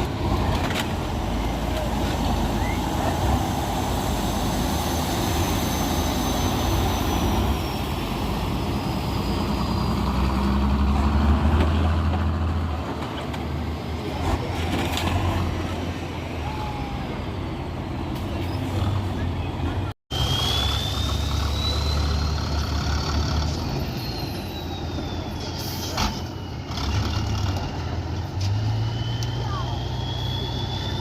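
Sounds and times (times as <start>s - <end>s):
truck engine running hard: 0.0s - 31.0s
faint high whistle: 2.5s - 3.0s, 4.8s - 7.9s, 20.1s - 22.6s, 23.7s - 26.7s, 28.6s - 31.0s.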